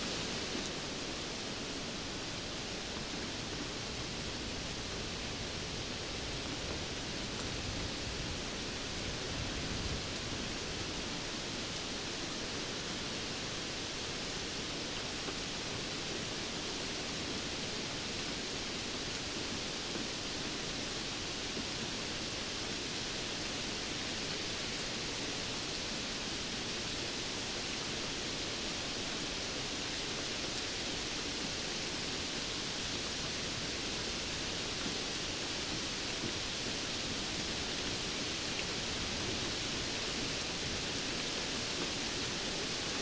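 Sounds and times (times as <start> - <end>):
steady rain falling: 0.0 - 43.0.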